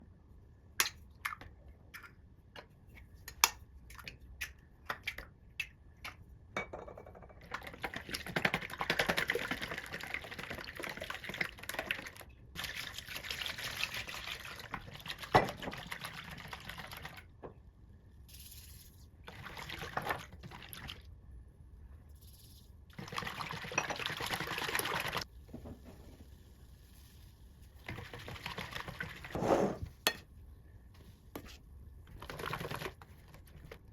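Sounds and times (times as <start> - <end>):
batter being stirred: 22.2 - 30.3, 31.0 - 33.9.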